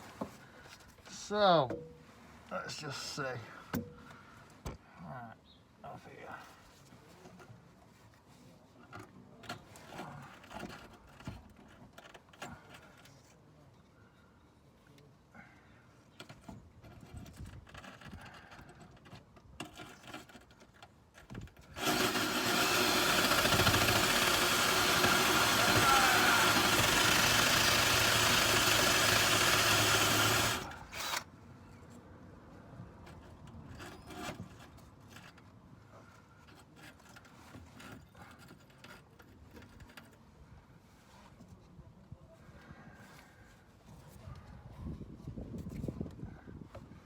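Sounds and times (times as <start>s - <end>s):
rotary tool grinding rust: 21.6s - 31.3s.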